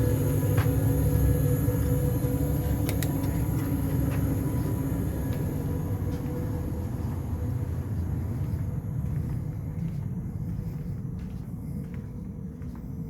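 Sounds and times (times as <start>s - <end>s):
train rumbling: 0.0s - 13.0s
sharp clicks: 2.8s - 3.4s.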